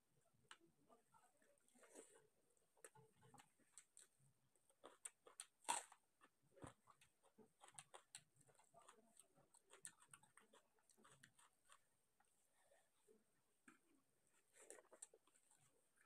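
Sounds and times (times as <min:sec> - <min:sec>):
person chewing: 0:04.7 - 0:11.9
fingers mixing rice on plate: 0:06.2 - 0:11.9.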